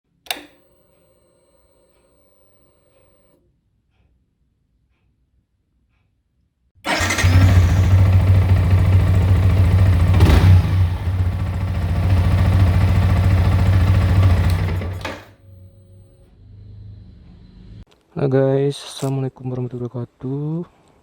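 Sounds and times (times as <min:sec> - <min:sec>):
motorcycle engine running loud: 0:06.9 - 0:15.3.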